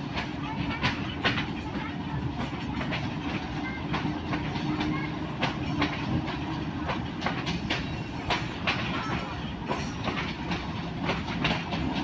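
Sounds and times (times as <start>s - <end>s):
train wheels rumbling on rails: 0.0s - 12.0s
wheels clacking over rail joints: 0.0s - 12.0s.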